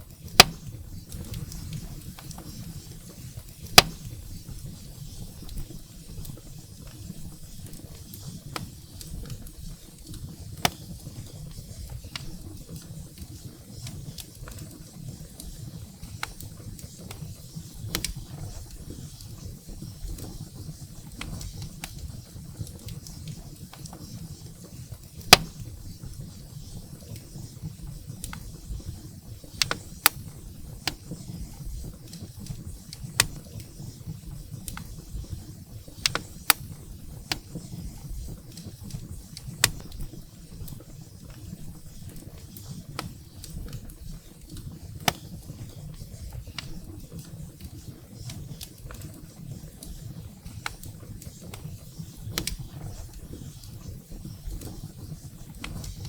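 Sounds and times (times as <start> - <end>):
firewood crackling and popping: 0.0 - 56.0.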